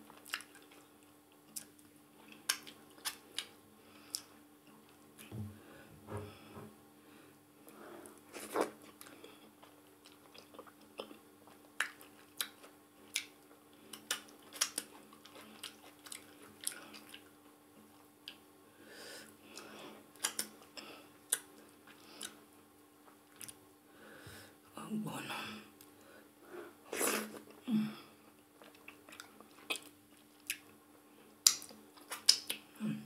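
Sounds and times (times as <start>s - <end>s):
chewing and wet mouth sounds: 0.0s - 5.3s, 8.1s - 18.4s, 19.5s - 22.4s, 23.0s - 23.6s, 28.3s - 32.7s
faint steady hum: 0.0s - 33.0s.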